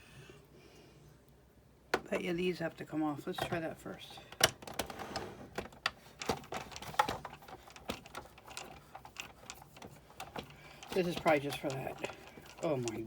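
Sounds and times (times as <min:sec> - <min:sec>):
clicks of plastic and metal parts: 0:04.3 - 0:05.0, 0:05.6 - 0:13.0.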